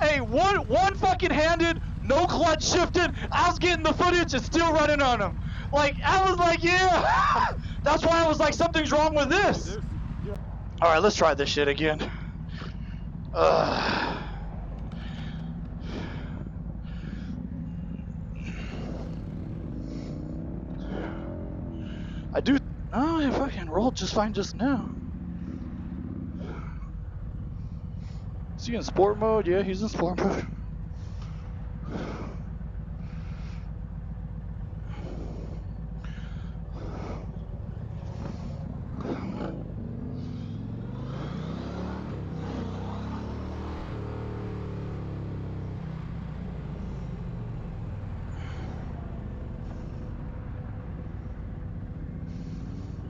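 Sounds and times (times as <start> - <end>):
motorcycle engine running steadily: 0.0 - 53.0.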